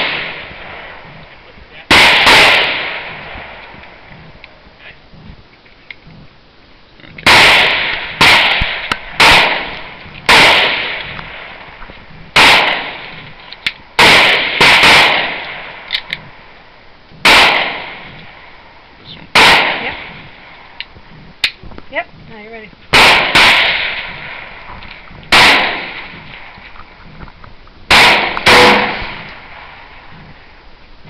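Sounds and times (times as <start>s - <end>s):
pistol shots: 0.0s - 1.0s, 1.9s - 3.8s, 7.2s - 11.8s, 12.4s - 13.4s, 14.0s - 16.2s, 17.2s - 18.4s, 19.3s - 20.7s, 22.9s - 26.6s, 27.9s - 30.1s.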